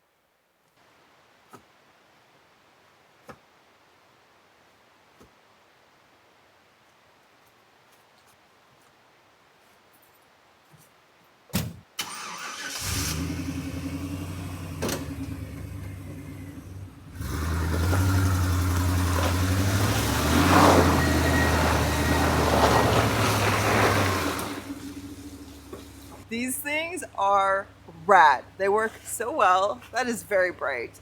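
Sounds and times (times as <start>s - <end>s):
van engine running: 12.0s - 26.3s
tyre noise: 17.2s - 26.4s.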